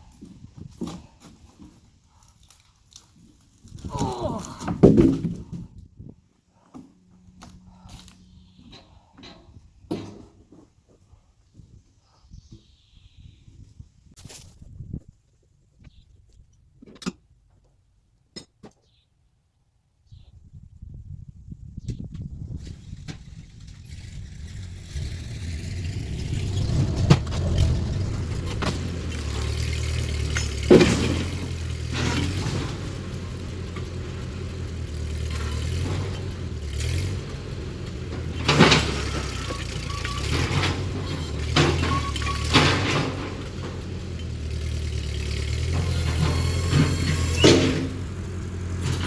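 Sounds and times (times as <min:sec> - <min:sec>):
loud clunks and knocks: 0:04.7 - 0:05.7, 0:25.0 - 0:33.0, 0:38.1 - 0:39.6, 0:40.2 - 0:43.9, 0:45.7 - 0:48.2
engine running at low speed: 0:22.3 - 0:49.0.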